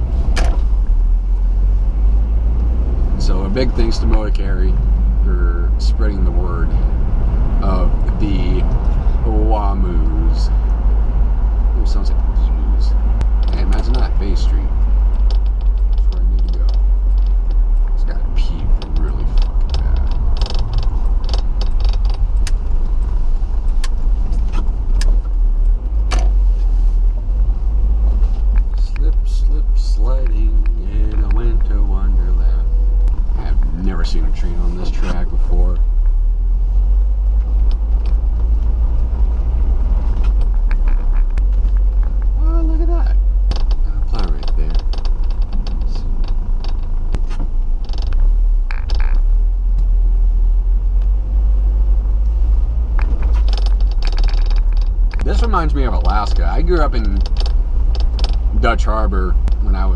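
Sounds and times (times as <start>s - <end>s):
engine and road rumble: 0.0s - 59.9s
sharp clicks or rattles: 13.2s - 26.4s, 37.4s - 38.7s, 40.1s - 42.4s, 43.1s - 49.8s, 53.0s - 58.8s.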